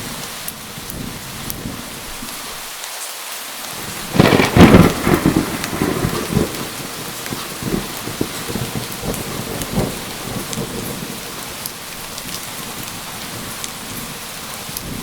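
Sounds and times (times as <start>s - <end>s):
steady rain falling: 0.0s - 15.0s
thunder rumbling: 3.8s - 15.0s.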